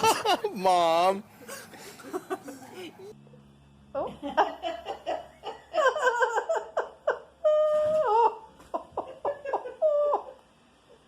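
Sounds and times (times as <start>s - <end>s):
high-pitched laughter: 4.1s - 10.4s.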